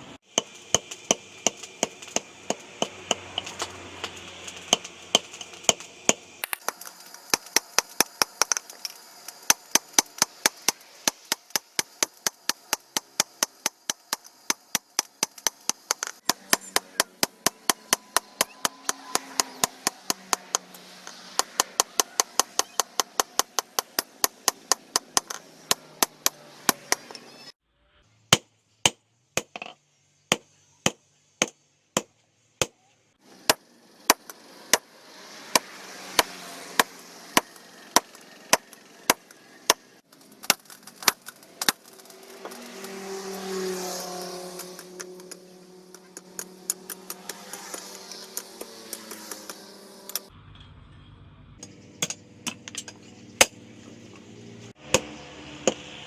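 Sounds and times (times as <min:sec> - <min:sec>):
sharp chopping knocks: 0:00.4 - 0:06.6, 0:29.4 - 0:31.0, 0:54.9 - 0:55.9.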